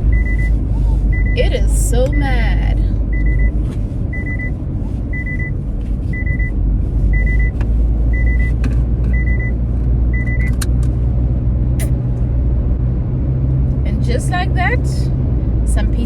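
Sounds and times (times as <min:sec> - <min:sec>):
car cabin road and engine rumble: 0:00.0 - 0:16.0
seatbelt reminder chime beeping: 0:00.1 - 0:00.6, 0:03.2 - 0:03.6, 0:07.2 - 0:07.6, 0:08.2 - 0:09.5, 0:10.2 - 0:10.6.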